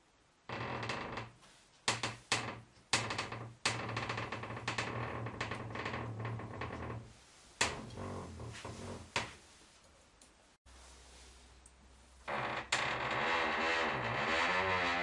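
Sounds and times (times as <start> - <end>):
door hinge creaking: 1.9 - 7.0, 12.3 - 15.0.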